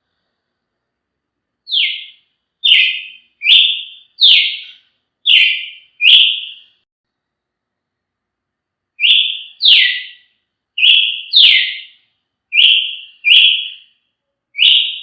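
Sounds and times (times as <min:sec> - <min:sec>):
bird singing descending notes: 0:01.7 - 0:06.8, 0:09.0 - 0:10.2, 0:10.8 - 0:11.9, 0:12.5 - 0:13.9.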